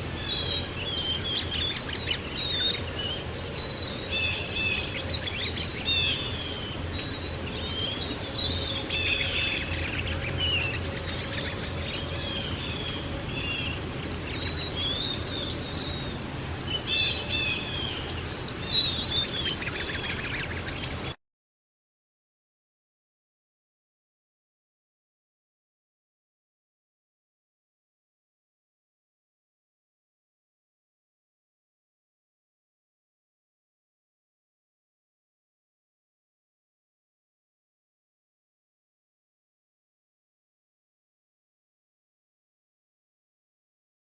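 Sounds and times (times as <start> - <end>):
low background noise: 0.0 - 21.2
songbirds chirping and trilling: 0.0 - 21.2.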